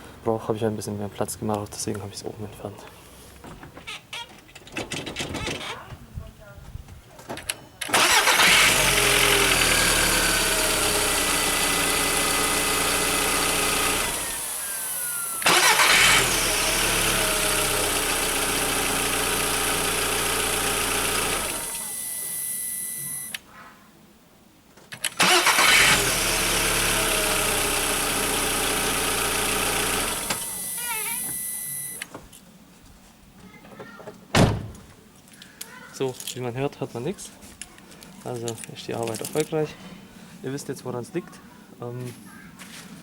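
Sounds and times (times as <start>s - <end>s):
car engine cranking and starting: 7.8s - 23.3s, 25.0s - 32.1s
car engine idling: 8.0s - 22.5s, 25.3s - 32.0s.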